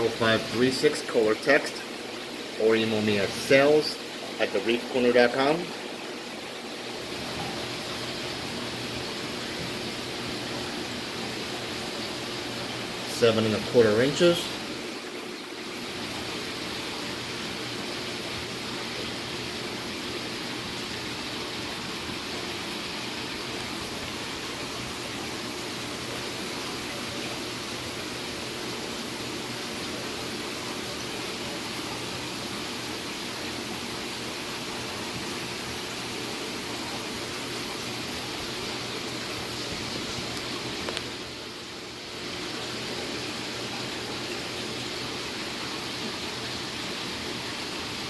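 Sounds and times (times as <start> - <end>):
faint low pump hum: 0.0 - 48.0
water rushing in aquarium: 0.0 - 48.0.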